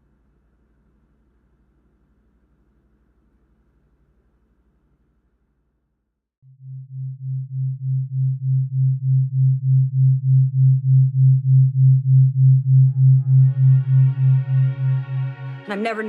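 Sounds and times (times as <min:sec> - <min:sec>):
low pulsing electronic tone: 0:06.5 - 0:15.6.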